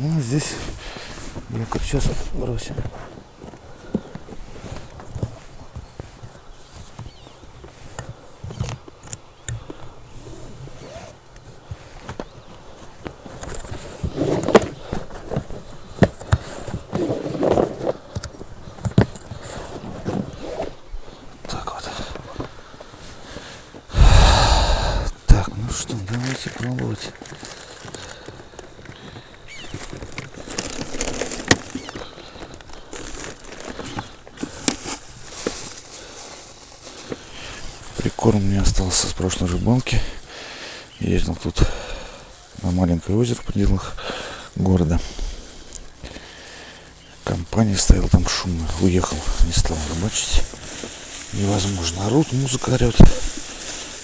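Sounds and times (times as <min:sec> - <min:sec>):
plastic bag crinkling: 0:29.8 - 0:38.0, 0:48.8 - 0:54.0.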